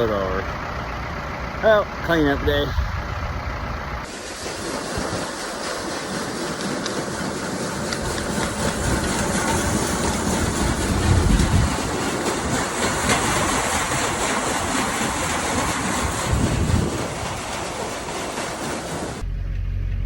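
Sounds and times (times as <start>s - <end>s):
heavy engine running: 0.0s - 20.0s
low rumbles: 0.0s - 20.0s.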